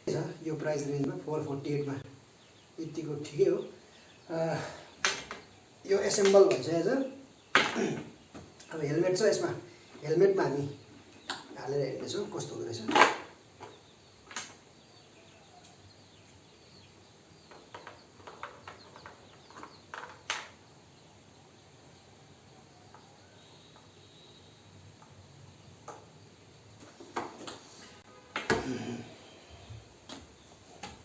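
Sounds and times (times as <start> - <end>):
faint steady hiss: 0.0 - 31.0.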